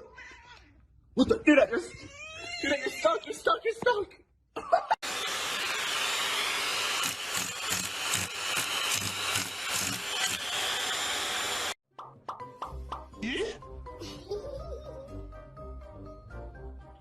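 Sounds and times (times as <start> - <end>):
small motor whirring: 5.0 - 11.8.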